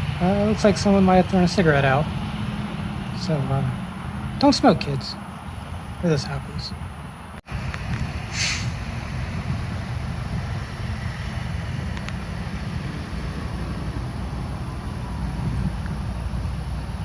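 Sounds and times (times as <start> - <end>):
traffic and idling trucks rumble: 0.0 - 17.0
short hiss: 8.3 - 8.9.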